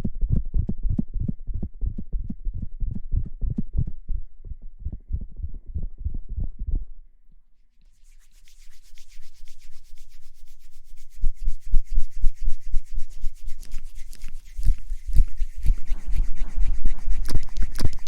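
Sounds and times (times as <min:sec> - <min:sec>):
rubbing strokes on microphone: 0:07.8 - 0:18.0.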